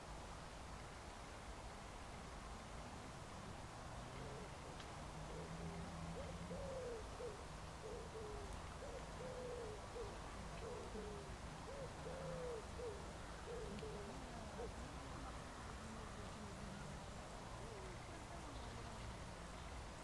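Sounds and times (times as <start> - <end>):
faint low hum: 0.0 - 20.0
bird cooing: 4.2 - 18.9.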